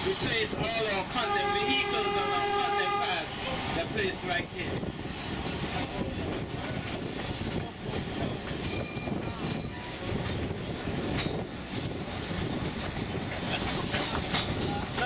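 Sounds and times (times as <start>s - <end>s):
train wheels rumbling on rail: 0.0s - 15.0s
high wheel squeals: 7.0s - 12.0s.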